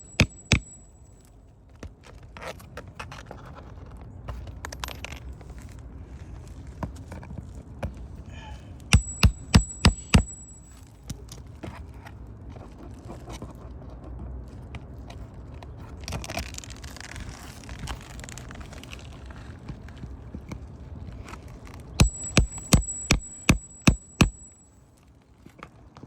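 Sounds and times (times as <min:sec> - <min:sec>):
hammer blows with metallic ring: 0:00.0 - 0:01.1, 0:08.4 - 0:10.8, 0:22.0 - 0:24.7.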